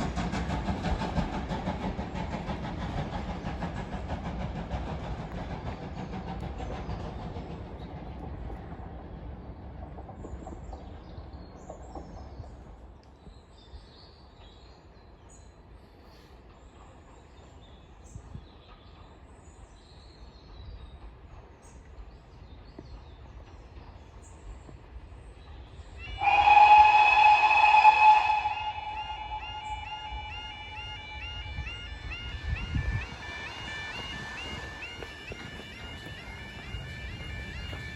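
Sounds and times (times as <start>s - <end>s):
faint birdsong: 0.0s - 37.9s
steam train rumble and wheel clatter: 0.0s - 37.9s
level crossing electronic alarm: 28.8s - 35.1s.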